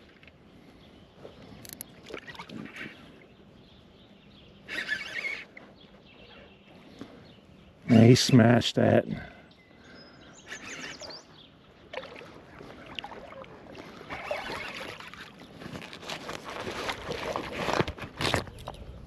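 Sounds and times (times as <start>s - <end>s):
water splashing and sloshing: 1.8s - 3.3s, 11.7s - 18.8s.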